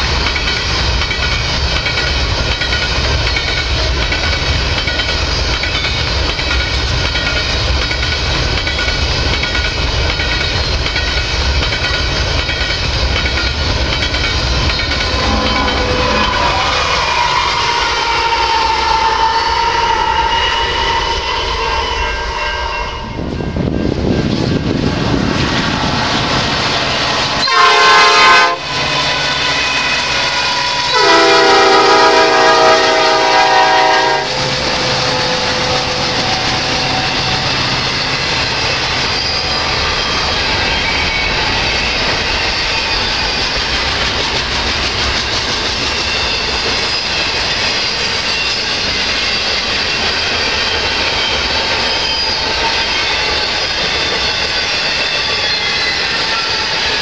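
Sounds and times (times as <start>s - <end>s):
train wheels on rail: 0.0s - 57.0s
locomotive air horn: 15.1s - 23.2s, 27.4s - 28.7s, 30.6s - 35.5s.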